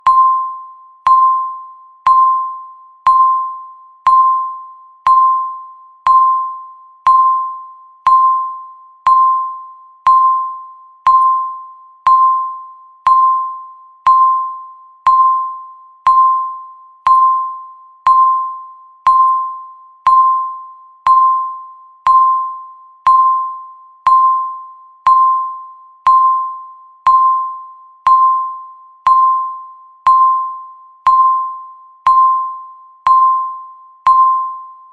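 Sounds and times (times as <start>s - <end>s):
electronic timer beep: 0.0s - 34.9s.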